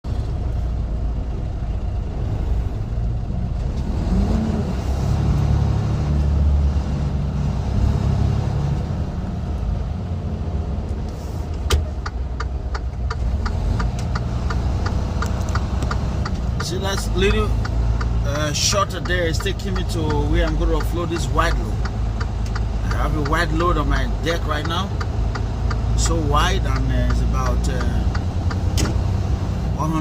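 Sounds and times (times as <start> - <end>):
truck diesel engine running: 5.1 - 30.0
regular ticking: 11.8 - 30.0.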